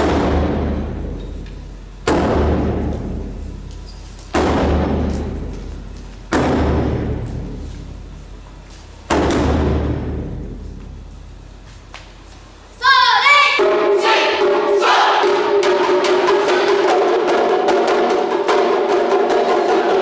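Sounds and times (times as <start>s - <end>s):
deep drum booms: 0.0s - 3.7s, 4.3s - 8.4s, 9.0s - 11.1s.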